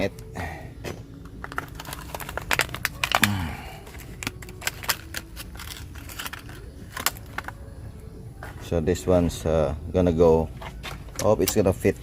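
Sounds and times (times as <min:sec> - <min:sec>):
metal parts clinking: 0:01.4 - 0:07.6.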